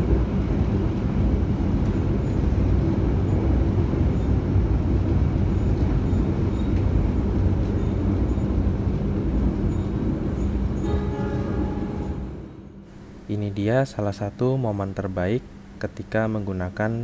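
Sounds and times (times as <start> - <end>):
train wheels rumbling on rails: 0.0 - 13.3.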